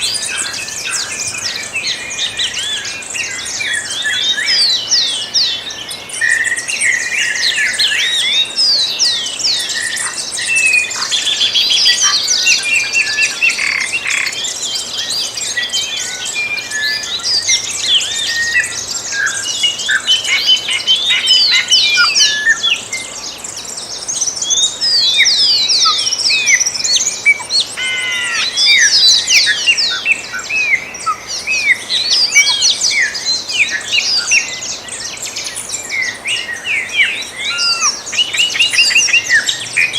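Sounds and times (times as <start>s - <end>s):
birds singing dawn chorus: 0.0s - 39.9s.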